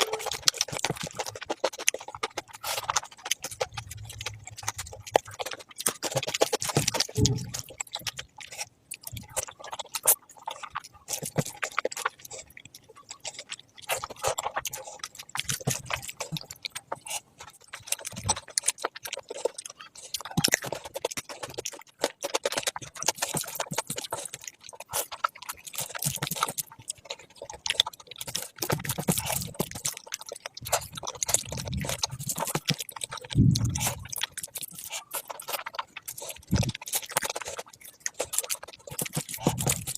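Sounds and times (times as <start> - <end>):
wet chewing and smacking: 0.0 - 39.9.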